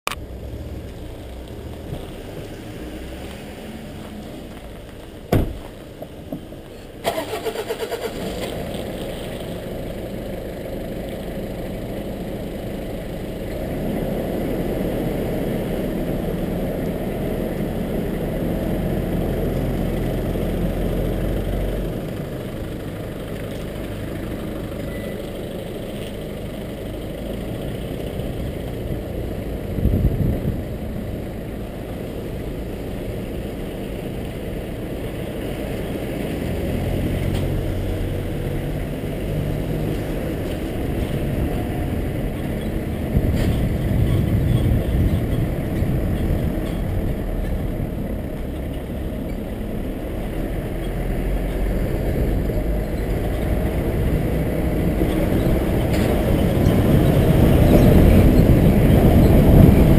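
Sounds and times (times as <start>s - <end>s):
car engine cranking and starting: 0.1s - 17.0s
car engine running: 0.1s - 59.9s
sharp thump: 5.3s - 5.7s.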